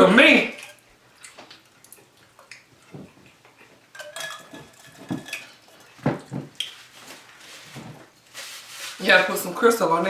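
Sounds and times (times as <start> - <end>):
tableware clinking: 3.9 - 6.5.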